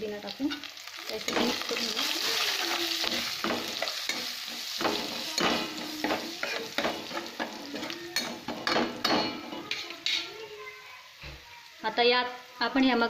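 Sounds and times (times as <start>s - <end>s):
oil sizzling: 0.0s - 13.0s
spoon scraping pan: 0.5s - 10.4s.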